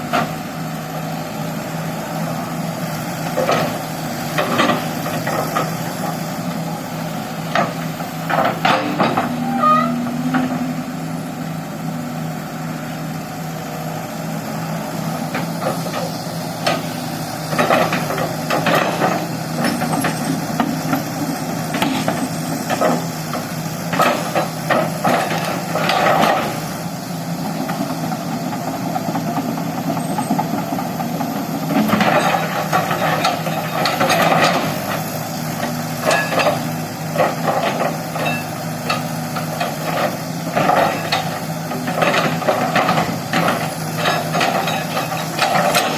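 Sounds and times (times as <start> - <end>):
excavator diesel engine running: 0.0 - 45.9
metal clanking and knocking: 40.5 - 45.9.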